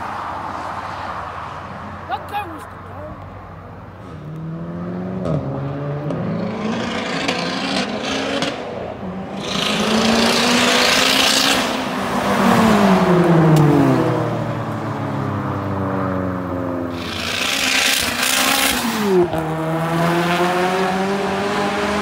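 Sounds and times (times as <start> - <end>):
exhaust rush and road noise: 0.0 - 22.0
car engine accelerating hard: 16.9 - 22.0.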